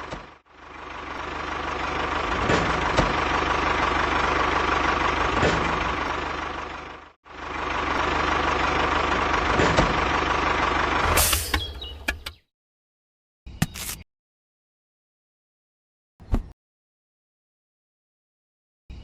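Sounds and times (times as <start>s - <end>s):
vehicle engine running: 0.0s - 12.4s.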